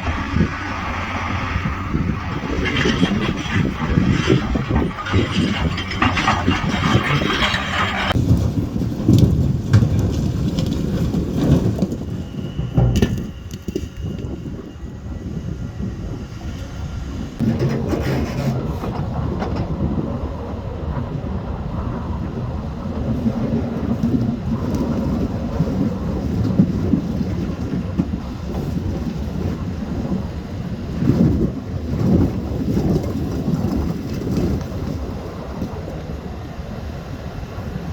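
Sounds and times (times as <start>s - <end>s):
heavy diesel engine rumbling: 0.0s - 22.2s
wind noise: 0.0s - 37.9s.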